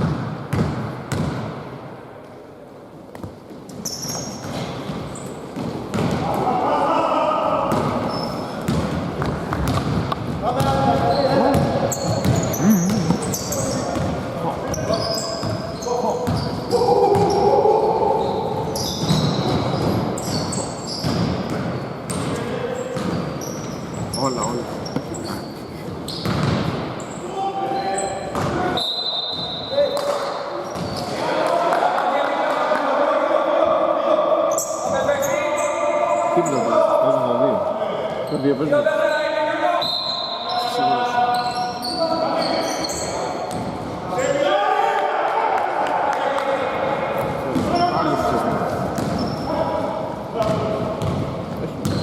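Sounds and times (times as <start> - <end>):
basketball bouncing on court: 0.0 - 1.6, 3.1 - 6.4, 7.7 - 16.5, 21.0 - 22.4, 23.0 - 25.2, 26.1 - 26.8, 28.3 - 28.6, 49.0 - 49.4, 50.4 - 52.0
shoe squeaks: 3.7 - 5.4, 8.1 - 8.6, 10.9 - 17.5, 18.2 - 29.9, 30.6 - 31.1, 34.5 - 36.7, 38.2 - 43.6, 48.9 - 49.8.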